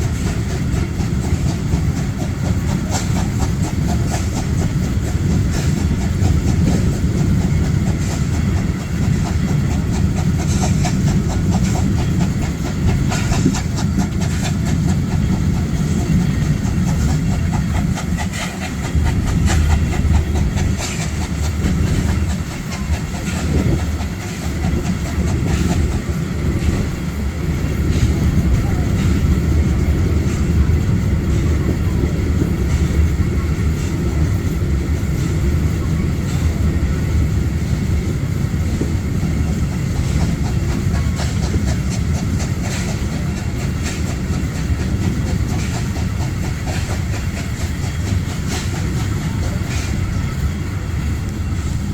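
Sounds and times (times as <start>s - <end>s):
wheels clicking over rail joints: 0.0s - 51.8s
train rumbling along track: 0.0s - 51.9s.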